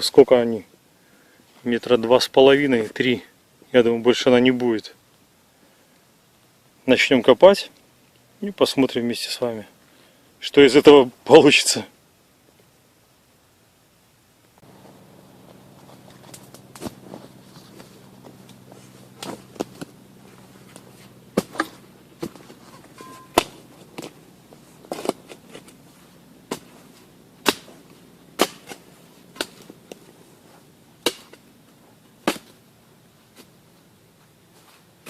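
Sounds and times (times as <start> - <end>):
shovel blade striking soil: 20.6 - 24.2, 24.8 - 25.8, 26.5 - 30.0, 31.0 - 31.5, 32.2 - 32.6.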